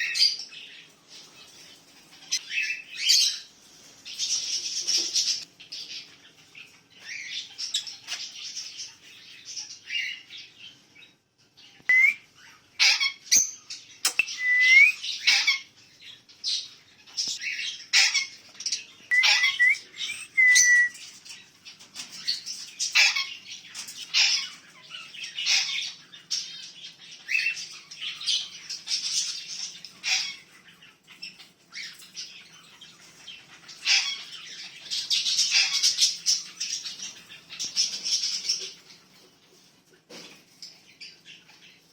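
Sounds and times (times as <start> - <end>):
small birds chirping and chattering: 0.0 - 41.9
bird whistled note: 11.9 - 12.2, 14.1 - 15.0, 19.1 - 21.0.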